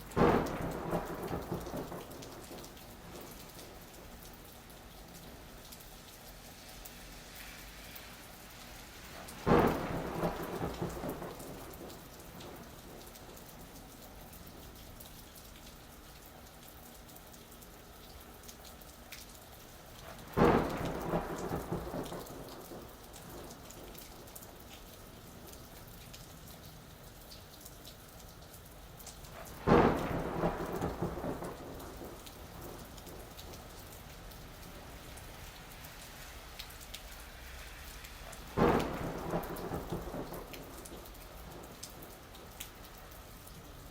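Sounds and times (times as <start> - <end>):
steady rain falling: 0.0 - 43.9
thunder claps rumbling: 0.1 - 3.7, 9.4 - 13.0, 20.2 - 24.6, 29.4 - 35.2, 38.4 - 42.6.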